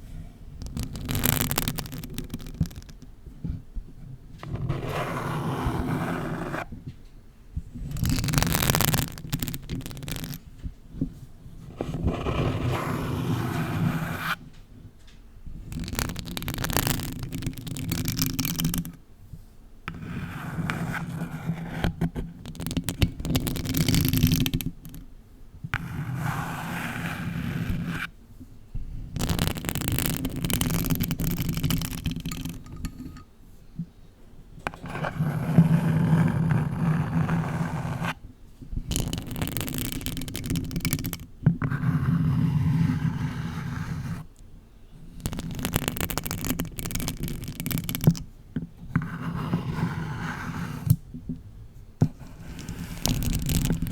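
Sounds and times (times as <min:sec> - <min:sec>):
nails scratching a box: 0:00.6 - 0:03.0, 0:04.4 - 0:06.7, 0:07.8 - 0:10.4, 0:11.7 - 0:14.4, 0:15.7 - 0:19.0, 0:19.9 - 0:25.0, 0:25.8 - 0:28.1, 0:29.2 - 0:33.2, 0:34.7 - 0:38.2, 0:38.9 - 0:44.3, 0:45.1 - 0:48.2, 0:48.9 - 0:51.0, 0:52.0 - 0:53.9.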